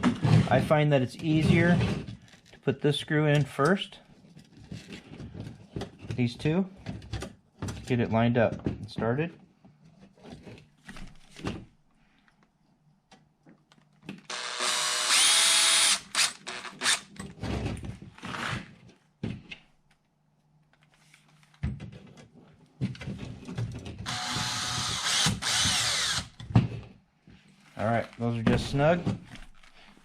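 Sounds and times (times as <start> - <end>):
power drill driving screws: 14.3 - 17.1, 24.0 - 26.4.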